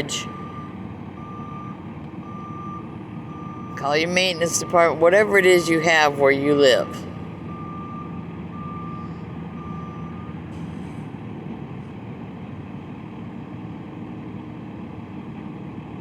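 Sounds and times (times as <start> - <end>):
reversing alarm beeping: 0.0 - 10.7
truck engine running: 0.0 - 16.0.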